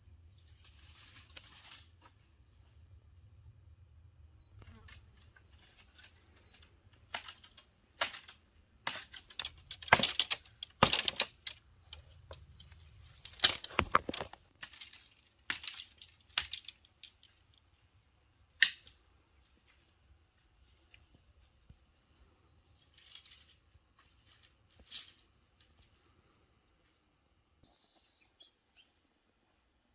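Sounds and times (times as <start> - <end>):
dry sticks snapping: 7.1 - 11.6, 13.2 - 17.3, 18.6 - 19.0.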